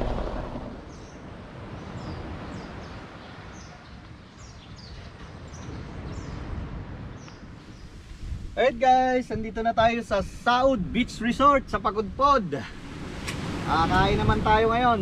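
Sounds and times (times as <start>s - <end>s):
low rumble: 0.0s - 1.3s
outdoor background hiss: 0.0s - 15.0s.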